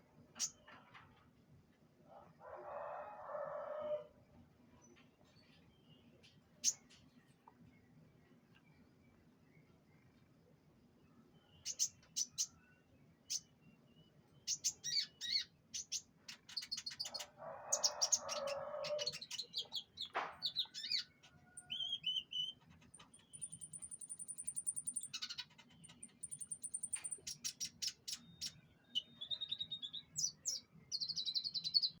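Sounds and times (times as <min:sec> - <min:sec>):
canary singing: 0:14.4 - 0:32.0.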